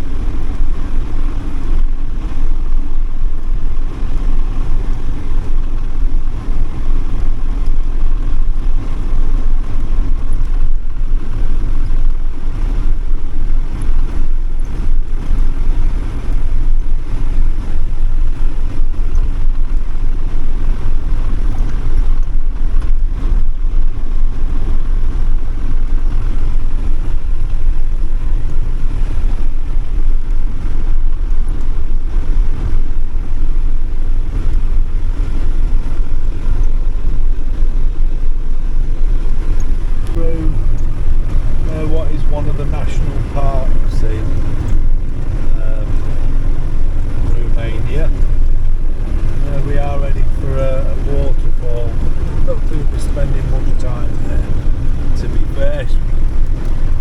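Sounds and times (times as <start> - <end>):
engine and tyre rumble: 0.0 - 57.0.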